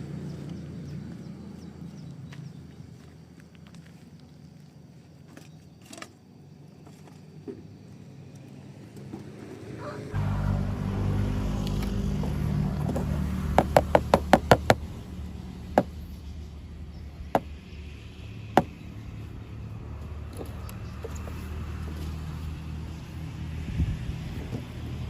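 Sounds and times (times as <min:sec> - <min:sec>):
low motor hum: 0:10.1 - 0:25.0.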